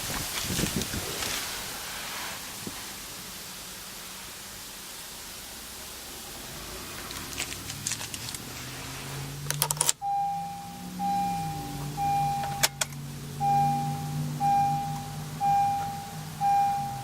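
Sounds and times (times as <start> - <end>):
car engine starting and idling: 5.8 - 17.0
warning chime beeping: 10.0 - 12.8, 13.4 - 17.0
keys jangling in ignition: 12.4 - 13.0.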